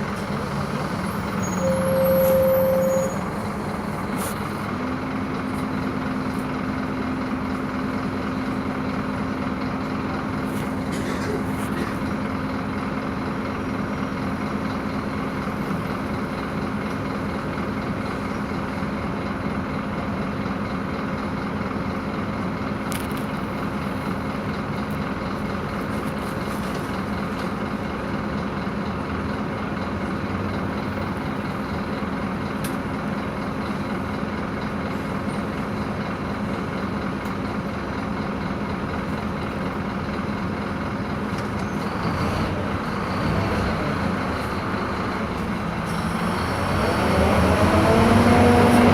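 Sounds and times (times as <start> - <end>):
road and body noise: 0.0 - 19.2, 22.4 - 28.3
bus engine drone: 0.0 - 48.9.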